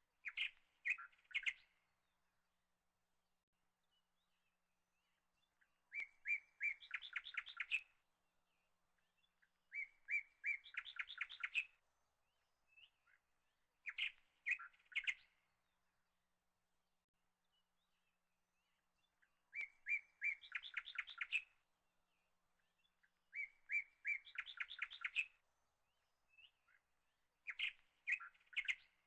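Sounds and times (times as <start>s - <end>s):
songbird singing: 0.0s - 2.6s, 3.8s - 16.2s, 17.3s - 29.0s.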